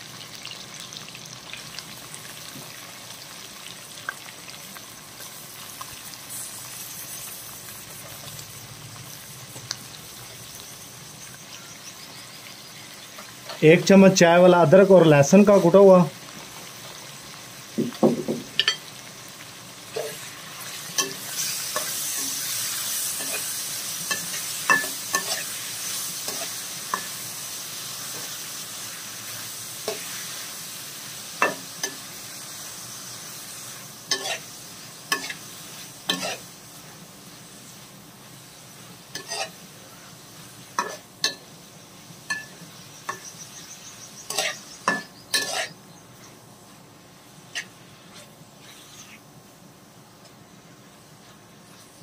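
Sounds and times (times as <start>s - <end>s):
chicken sizzling in hot oil: 0.0s - 52.0s
steel spatula clinking and scraping: 24.1s - 25.6s, 34.1s - 34.5s, 36.1s - 36.4s, 39.1s - 39.6s, 40.8s - 41.4s, 42.3s - 43.3s, 44.3s - 45.8s.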